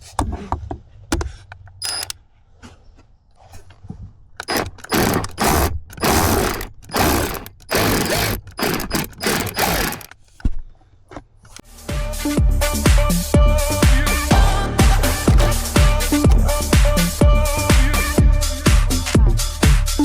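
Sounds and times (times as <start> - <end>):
hand tool ratcheting: 1.8 - 2.2, 4.4 - 10.4, 15.3 - 15.6.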